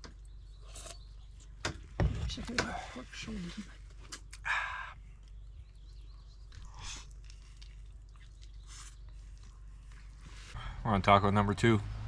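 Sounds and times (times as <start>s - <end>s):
person chewing: 5.1s - 10.4s
crunchy bites: 6.4s - 10.2s.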